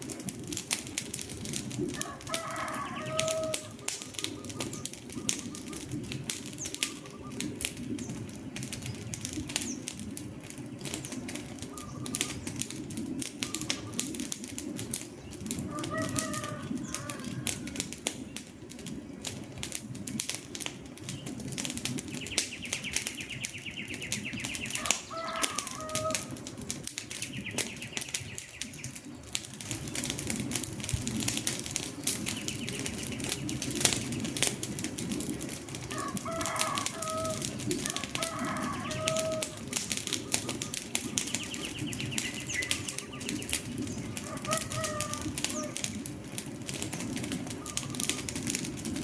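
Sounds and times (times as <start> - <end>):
wood fire crackling and popping: 0.0 - 49.0
bird calls: 2.0 - 18.5, 22.0 - 29.4, 31.8 - 34.4, 35.8 - 46.0, 47.3 - 48.6.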